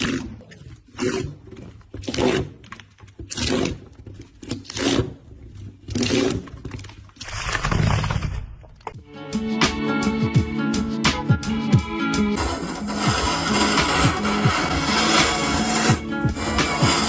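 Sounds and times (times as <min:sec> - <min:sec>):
hand tool scraping wood: 0:00.9 - 0:07.5, 0:12.3 - 0:17.0.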